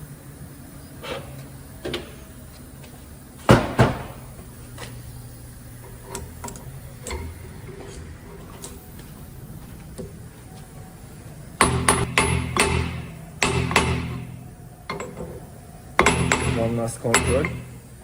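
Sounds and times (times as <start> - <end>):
loud knocks: 3.5 - 4.2, 11.6 - 14.4, 16.0 - 17.7.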